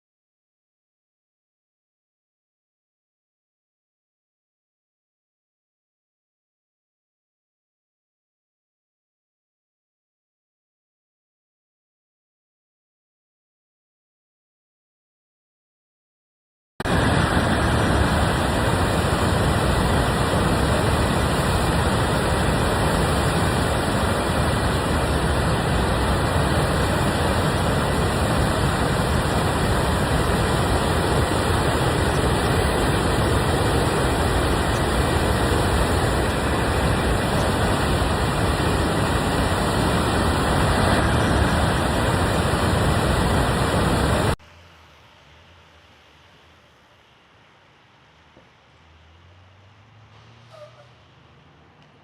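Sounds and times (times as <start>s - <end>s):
river roaring over waterfall: 16.9s - 44.4s.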